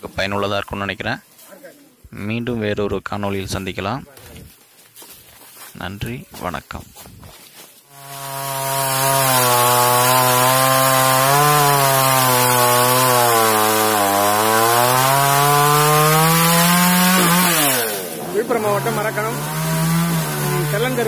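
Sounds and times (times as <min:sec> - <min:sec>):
chainsaw cutting wood: 0:07.9 - 0:21.0.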